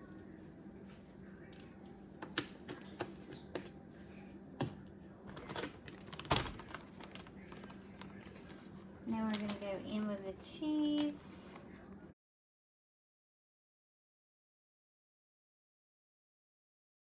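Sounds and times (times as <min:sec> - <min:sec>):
kitchen items tapping and clicking: 0:04.6 - 0:11.6.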